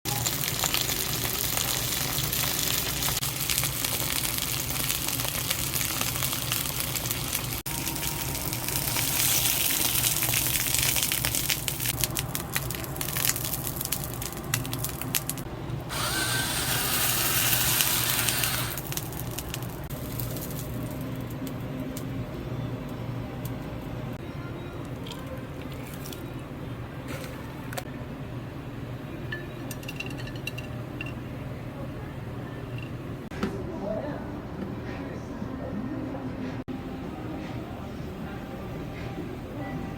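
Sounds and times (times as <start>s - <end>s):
food searing in a pan: 0.1s - 21.4s.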